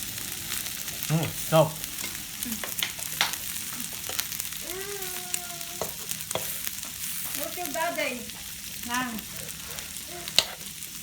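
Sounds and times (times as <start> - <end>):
food sizzling on a grill: 0.0 - 11.0.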